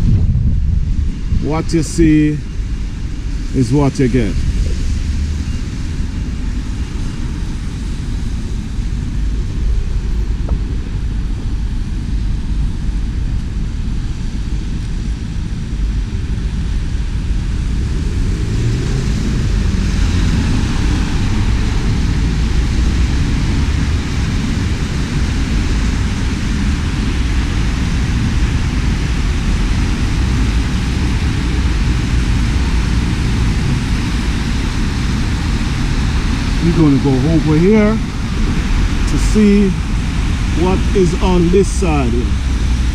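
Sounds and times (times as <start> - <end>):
steady low rumble: 0.0 - 42.9
wet road noise: 16.3 - 42.9
rain hissing: 29.7 - 42.9.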